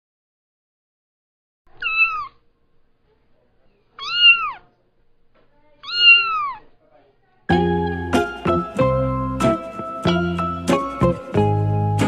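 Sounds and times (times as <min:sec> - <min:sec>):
kitten meowing: 0:01.7 - 0:02.4, 0:04.0 - 0:04.7, 0:05.8 - 0:06.7.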